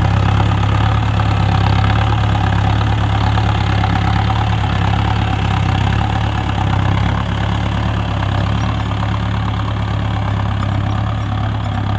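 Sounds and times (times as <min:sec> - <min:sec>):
tractor diesel engine running: 0:00.0 - 0:11.9.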